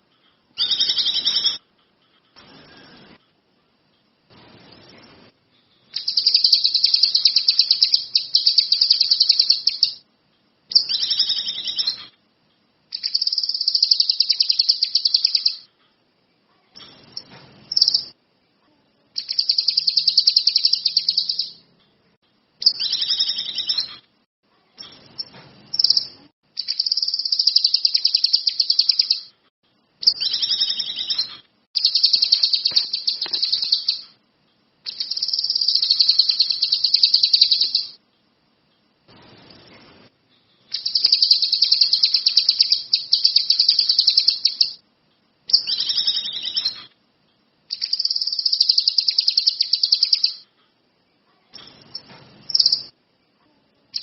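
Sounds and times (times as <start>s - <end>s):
bird singing buzzy trills: 6.0s - 10.0s, 10.7s - 12.0s, 30.0s - 34.1s, 34.9s - 38.0s, 40.7s - 44.8s, 45.5s - 46.9s, 47.7s - 50.4s.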